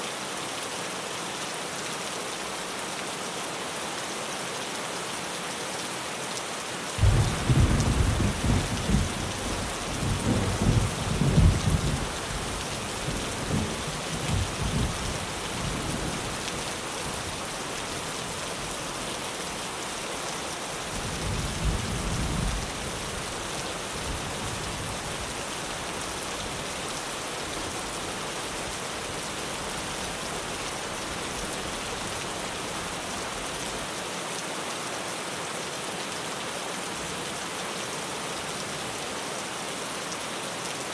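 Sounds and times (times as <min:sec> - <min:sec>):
rain on a tin roof: 0:00.0 - 0:40.9
thunder rumbling: 0:07.0 - 0:15.8.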